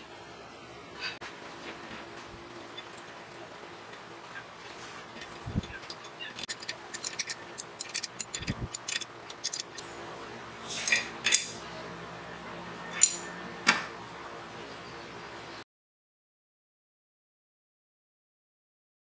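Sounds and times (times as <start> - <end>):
wire rope clicking on winch drum: 6.4 - 9.8
loud metallic clinks: 12.9 - 13.3.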